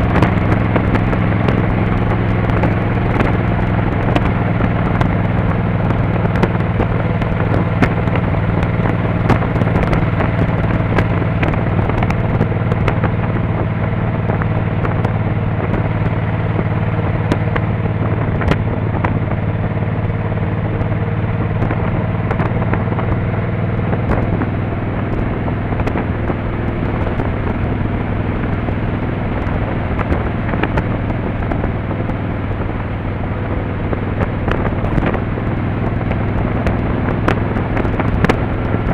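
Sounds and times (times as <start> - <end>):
motorcycle engine running: 0.0 - 38.9
road noise: 0.0 - 38.9
wind noise: 0.0 - 38.9.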